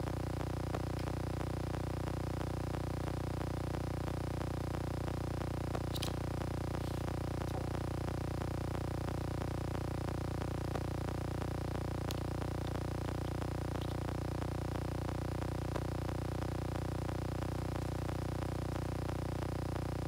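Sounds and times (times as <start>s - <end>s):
steady low hum: 0.0s - 20.0s
faint small clicks: 5.8s - 6.2s, 12.0s - 12.8s, 13.8s - 14.0s.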